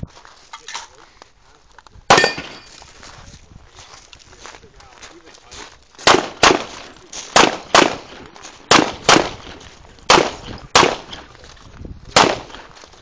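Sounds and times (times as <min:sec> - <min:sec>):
pistol shots with echo: 0:02.1 - 0:02.7, 0:06.0 - 0:11.4, 0:12.1 - 0:12.7.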